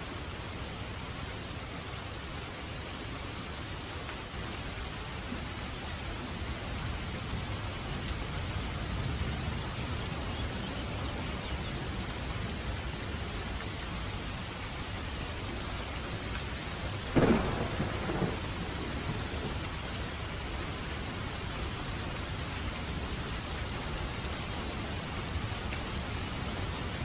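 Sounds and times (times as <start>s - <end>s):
steady rain: 0.0s - 27.0s
thunder clap crackling: 17.1s - 19.8s.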